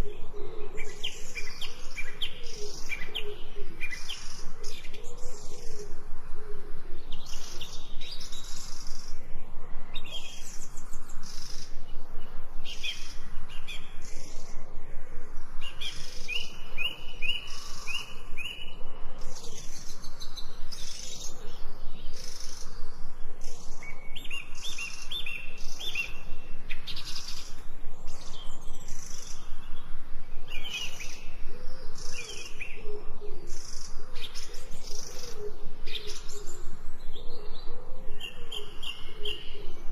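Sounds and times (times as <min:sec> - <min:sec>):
low cooing call: 0:00.0 - 0:07.5, 0:30.6 - 0:39.9
birds chirping and singing: 0:00.0 - 0:14.7, 0:15.3 - 0:39.9.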